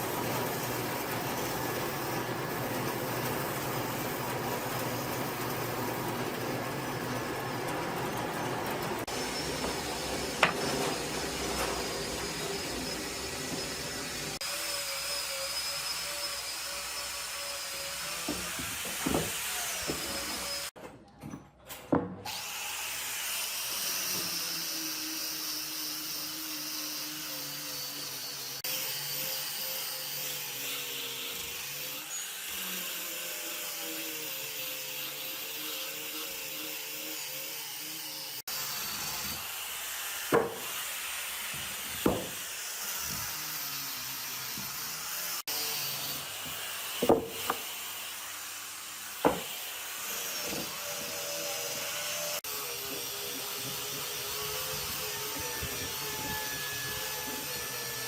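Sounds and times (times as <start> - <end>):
power tool cutting wood: 0.0 - 20.8, 22.2 - 58.0
knocks: 42.0 - 42.4.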